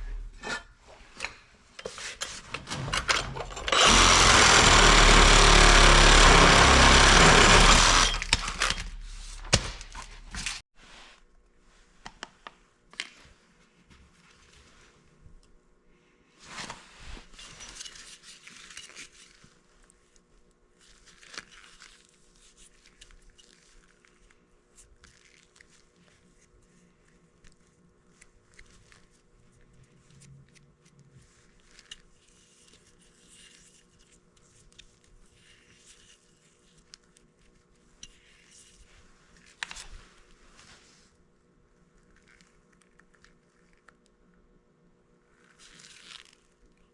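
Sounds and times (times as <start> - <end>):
tools scraping and rustling: 0.0 - 4.8.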